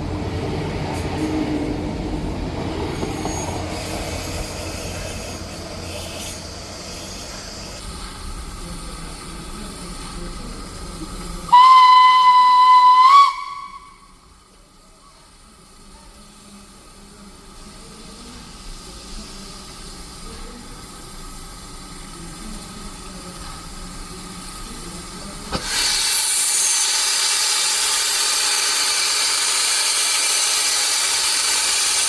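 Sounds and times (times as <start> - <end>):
train rumble: 0.0 - 32.0
steam locomotive whistle: 11.5 - 14.4.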